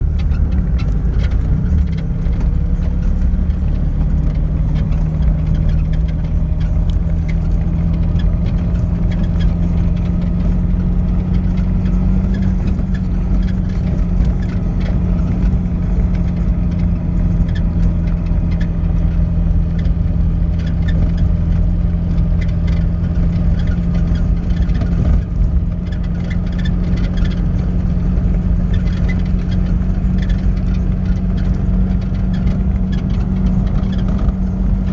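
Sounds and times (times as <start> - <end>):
car engine droning: 0.0 - 34.9
small knocks and rattles: 0.0 - 34.9.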